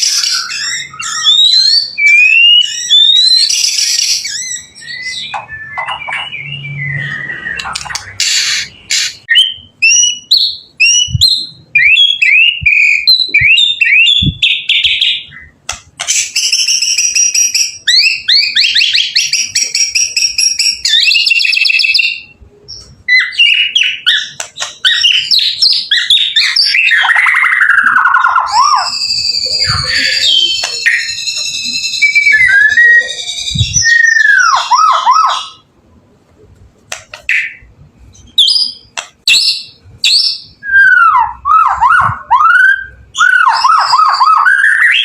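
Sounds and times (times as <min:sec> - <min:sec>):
bird singing whistles and trills: 0:00.0 - 0:35.6, 0:37.3 - 0:45.0.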